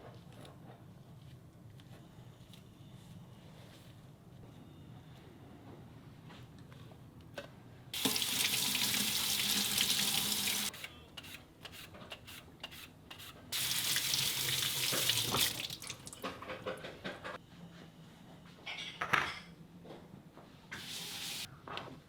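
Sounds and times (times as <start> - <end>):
tap running into sink: 8.0 - 10.7, 13.6 - 16.4.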